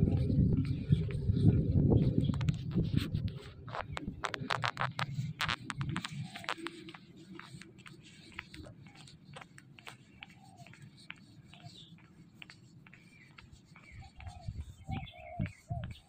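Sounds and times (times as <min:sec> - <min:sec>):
light ticks and scuffs: 0:00.0 - 0:16.0
faint bird chirps: 0:12.9 - 0:16.0.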